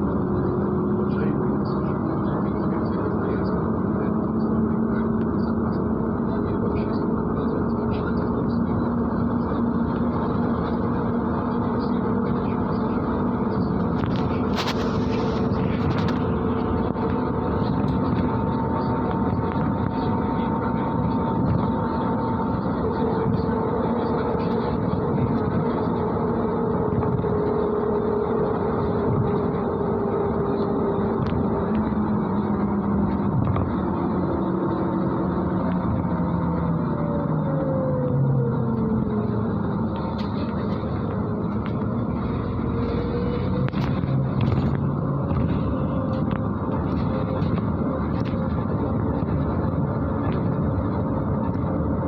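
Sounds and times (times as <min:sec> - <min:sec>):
bus engine and road rumble: 0:00.0 - 0:52.0.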